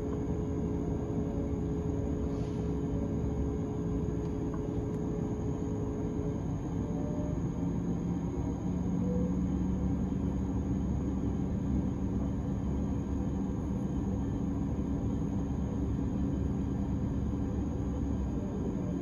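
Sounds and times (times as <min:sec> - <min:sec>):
train equipment hum and rumble: 0:00.0 - 0:19.0.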